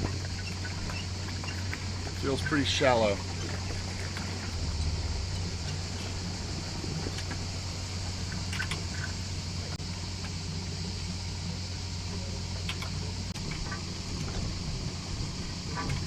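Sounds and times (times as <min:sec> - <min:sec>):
boat engine running: 0:00.0 - 0:16.0
water hissing: 0:02.3 - 0:09.8.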